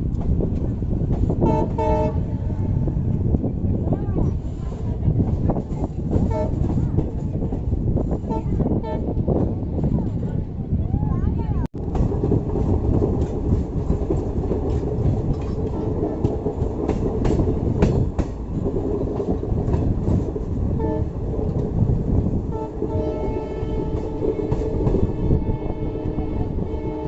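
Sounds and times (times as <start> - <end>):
train rumbling on rails: 0.0 - 27.0
train horn: 1.4 - 2.8, 6.2 - 6.7, 20.8 - 21.1, 22.5 - 27.0
wheels clicking over rail joints: 11.8 - 25.1.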